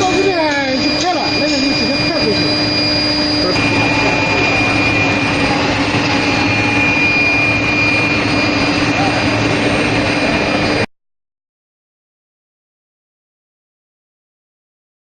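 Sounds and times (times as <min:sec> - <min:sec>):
high steady whine: 0:00.0 - 0:10.9
low steady hum: 0:00.0 - 0:10.9.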